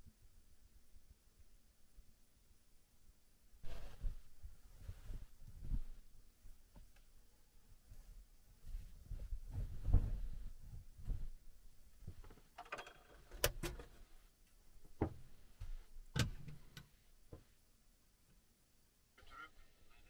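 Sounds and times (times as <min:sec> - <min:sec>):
low thuds and knocks: 0:14.8 - 0:16.5.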